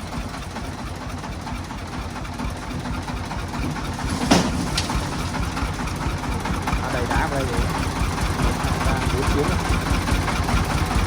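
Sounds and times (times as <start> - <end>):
diesel engine idling: 0.0 - 11.0
metallic clank: 3.6 - 5.6.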